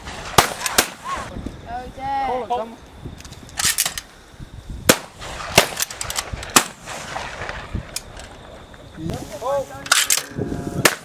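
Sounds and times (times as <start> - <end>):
shotgun shots: 0.0 - 1.2, 4.9 - 7.9.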